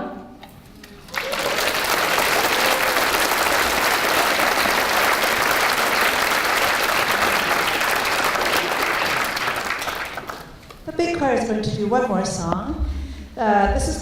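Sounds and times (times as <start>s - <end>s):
audience applauding: 0.8s - 10.8s.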